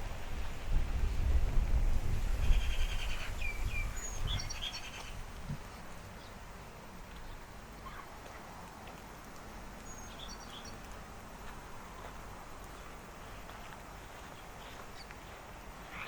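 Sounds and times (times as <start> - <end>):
small birds calling: 2.4 - 5.2.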